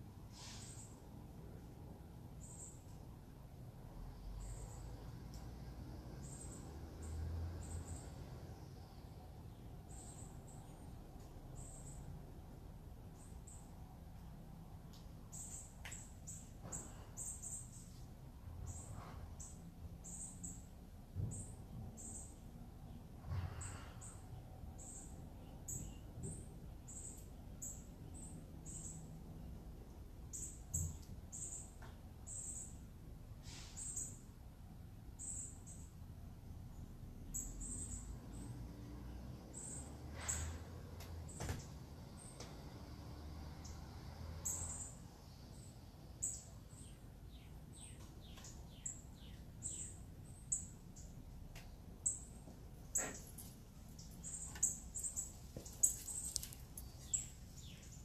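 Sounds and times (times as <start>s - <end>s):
birds chirping: 44.4s - 58.0s.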